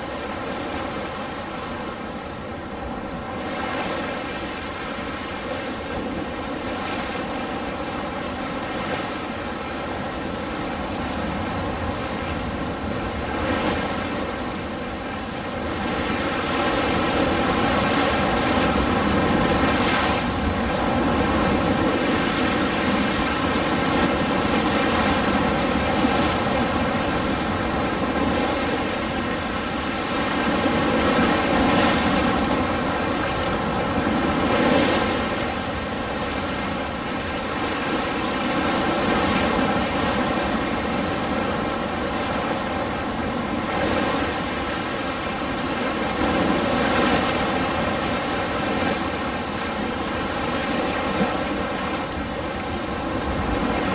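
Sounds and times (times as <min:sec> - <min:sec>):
ocean waves washing on shore: 0:00.0 - 0:53.9.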